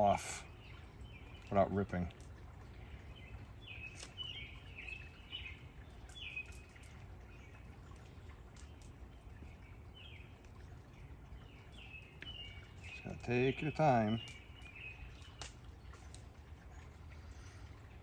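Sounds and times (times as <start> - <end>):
birds chirping: 0.0 - 18.0
faint clicks: 14.2 - 16.3.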